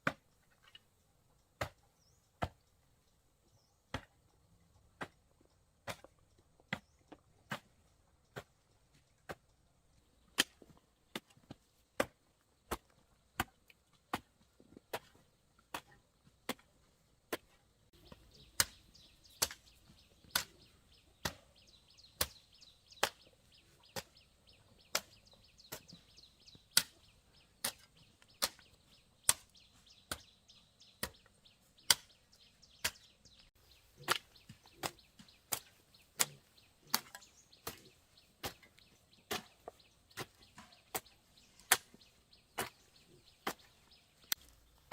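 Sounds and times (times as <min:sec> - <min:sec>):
wood being chopped: 0:12.0 - 0:13.5, 0:26.7 - 0:30.3, 0:31.8 - 0:32.2, 0:34.0 - 0:44.9.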